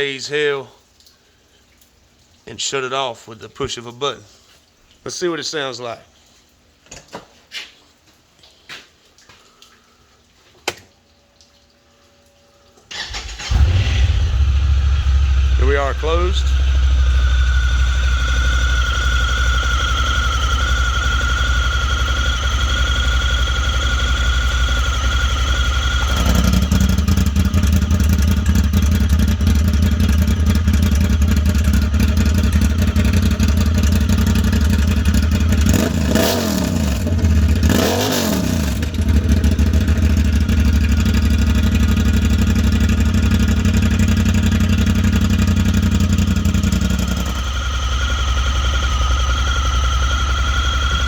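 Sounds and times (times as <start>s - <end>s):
engine idling and revving: 13.0s - 51.0s.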